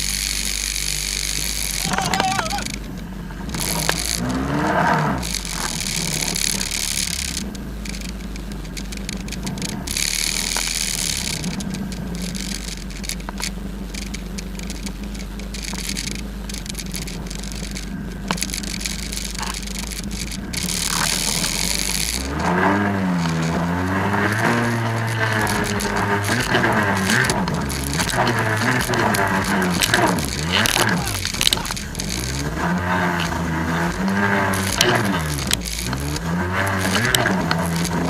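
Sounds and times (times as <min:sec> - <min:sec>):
jet ski engine running: 0:00.0 - 0:38.0.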